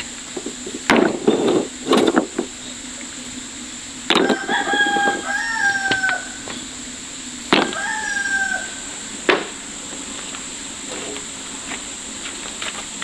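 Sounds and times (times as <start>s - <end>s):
rooster crowing: 4.1s - 6.7s, 7.5s - 9.2s.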